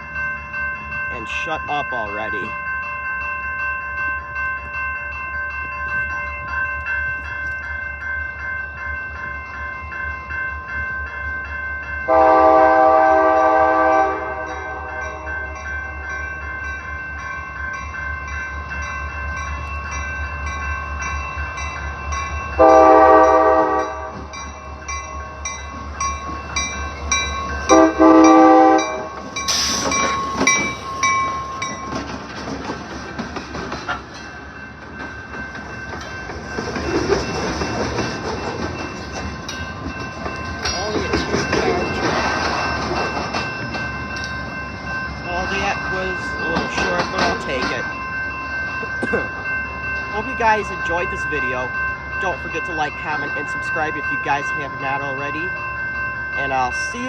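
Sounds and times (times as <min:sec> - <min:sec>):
repeating ringing bell: 0:00.0 - 0:12.2, 0:34.2 - 0:57.0
train passing: 0:00.0 - 0:57.0
locomotive horn blasts: 0:12.1 - 0:15.0, 0:22.6 - 0:24.2, 0:27.7 - 0:29.1.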